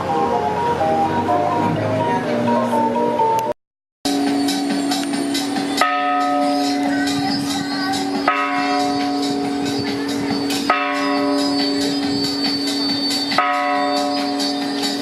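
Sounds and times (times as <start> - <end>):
street noise: 0.0 - 15.0
large bell ringing: 4.1 - 15.0.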